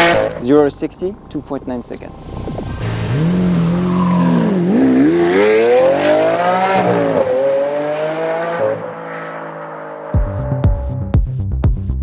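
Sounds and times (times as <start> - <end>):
car engine accelerating hard: 0.0 - 0.4, 1.9 - 10.7.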